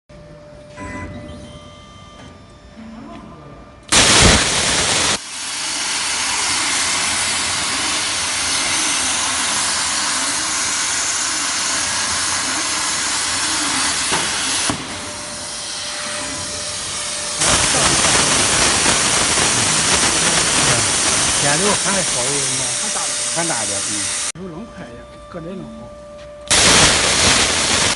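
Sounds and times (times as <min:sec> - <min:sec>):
plasma cutter hissing: 0:03.9 - 0:24.3, 0:26.5 - 0:27.9.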